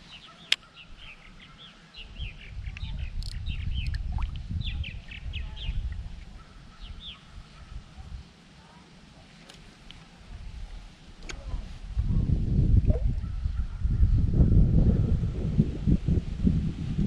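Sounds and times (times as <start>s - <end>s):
small birds chirping: 0.0s - 8.3s
wind buffeting the microphone: 0.8s - 8.3s, 9.9s - 17.0s
sharp click: 2.7s - 4.0s.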